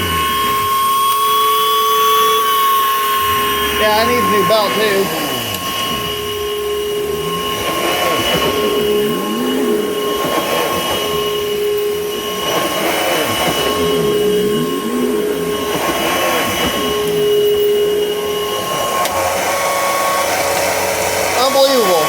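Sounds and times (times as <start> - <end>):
vacuum cleaner motor whine: 0.0 - 22.0.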